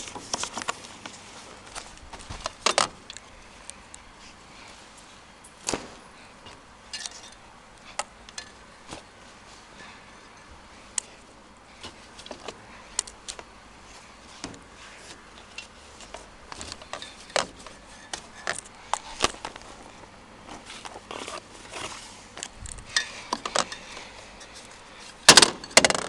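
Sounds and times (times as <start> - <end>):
objects clicking and knocking: 25.3 - 26.0.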